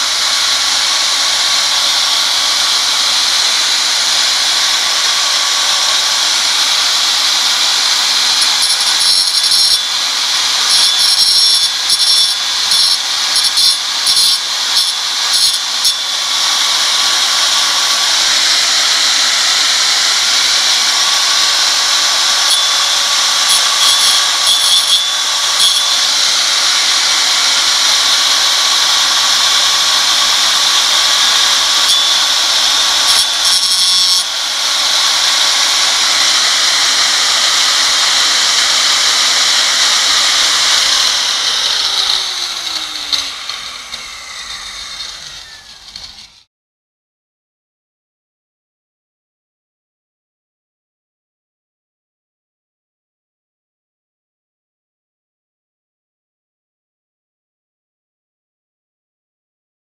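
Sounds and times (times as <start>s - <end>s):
angle grinder cutting stone: 0.0s - 46.5s.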